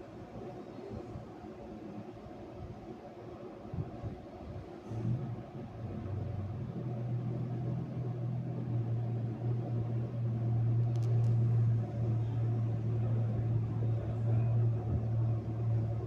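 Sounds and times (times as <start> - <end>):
car mechanical hum: 4.8 - 16.0.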